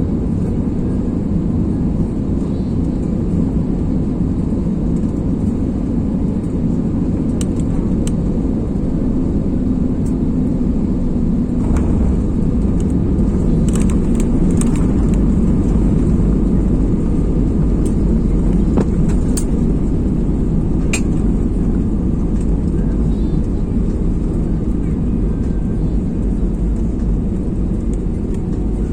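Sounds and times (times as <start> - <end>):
airplane engines rumbling: 0.0 - 28.9
faint clicks and rattles: 11.6 - 15.7.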